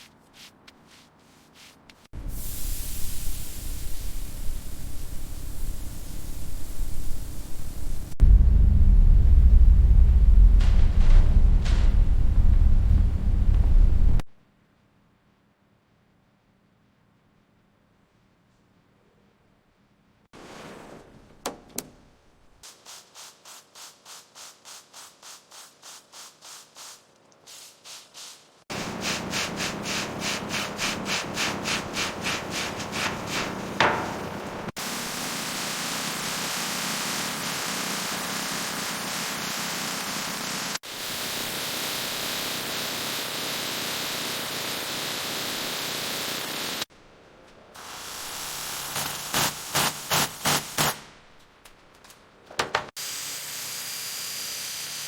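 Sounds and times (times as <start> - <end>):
hand sanding strokes: 0.0 - 2.6, 22.6 - 35.2
spraying tool hissing: 2.2 - 8.2, 22.7 - 46.9, 47.8 - 51.0.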